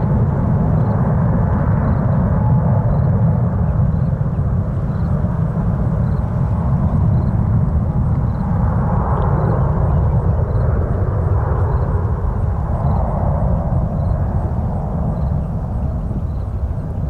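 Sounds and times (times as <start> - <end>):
jet airliner passing overhead: 0.0 - 17.0.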